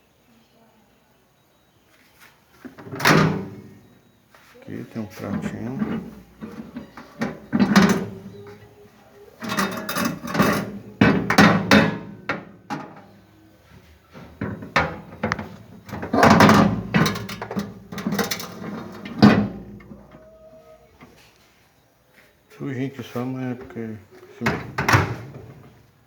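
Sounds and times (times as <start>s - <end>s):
microwave oven knocks and clatter: 9.4s - 13.0s, 14.4s - 20.1s, 24.5s - 25.6s.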